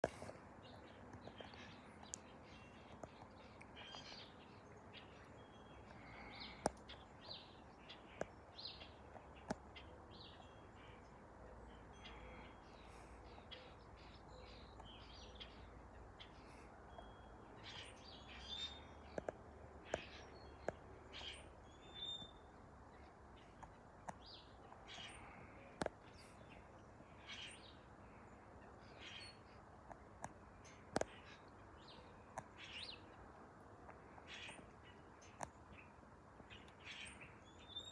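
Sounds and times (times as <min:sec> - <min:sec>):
small birds chirping: 0:00.0 - 0:37.9.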